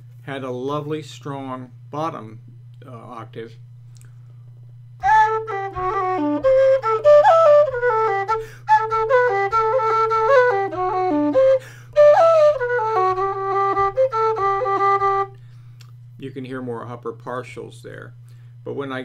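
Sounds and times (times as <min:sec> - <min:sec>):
steady low hum: 0:00.0 - 0:19.0
low whistle playing a quick tune: 0:05.0 - 0:15.4.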